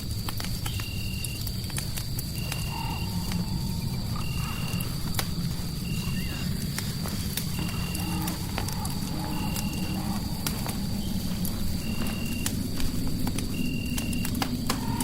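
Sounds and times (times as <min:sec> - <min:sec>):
fireplace crackling: 0:00.0 - 0:15.0.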